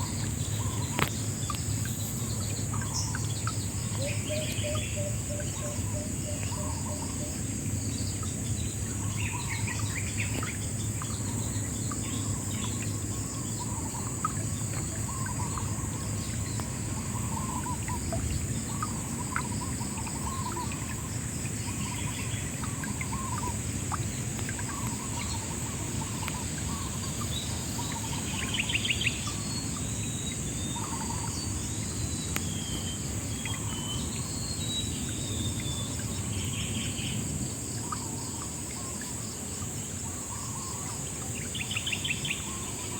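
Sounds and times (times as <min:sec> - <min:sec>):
insects trilling: 0:00.0 - 0:42.9
birds chirping: 0:07.9 - 0:39.0.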